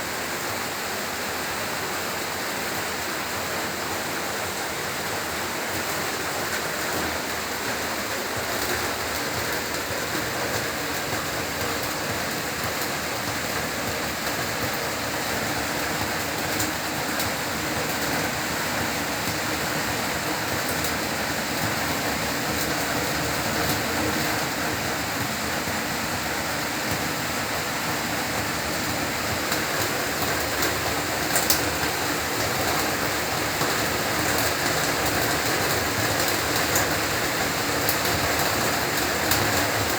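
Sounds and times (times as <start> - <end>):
heavy rain falling: 0.0 - 39.9
rain drop taps: 8.4 - 25.8, 27.9 - 39.9.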